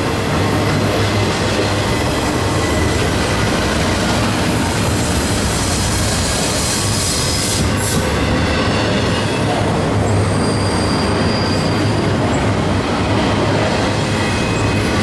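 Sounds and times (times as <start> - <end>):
freight train rolling past: 0.0 - 15.0
faint wheel squeal: 10.1 - 12.0.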